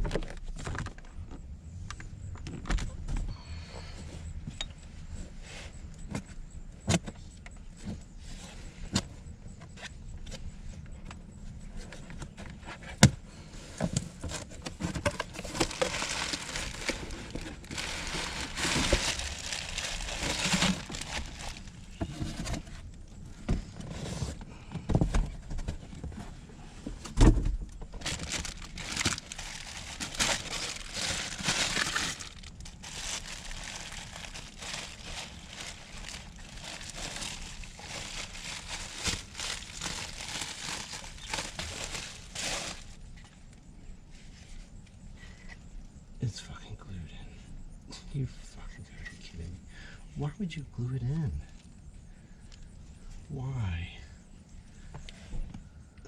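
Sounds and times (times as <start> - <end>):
scraping and rustling: 11.6 - 43.3.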